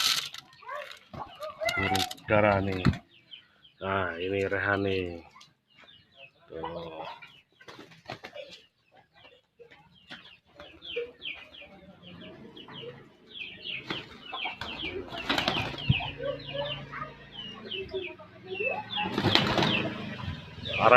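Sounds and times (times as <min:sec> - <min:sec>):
small birds chirping: 0:00.0 - 0:20.9
wings flapping: 0:13.8 - 0:16.0, 0:19.0 - 0:20.5.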